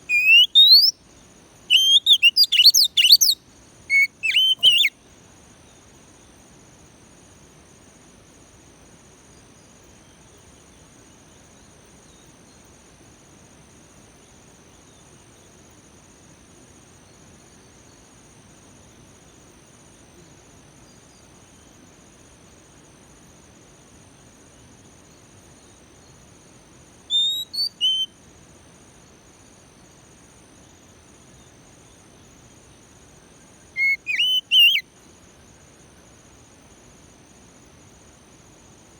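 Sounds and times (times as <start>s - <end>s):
cricket chirring: 0.0s - 38.9s
bird whistling: 0.1s - 0.9s, 1.7s - 4.9s, 27.1s - 28.1s, 33.8s - 34.8s.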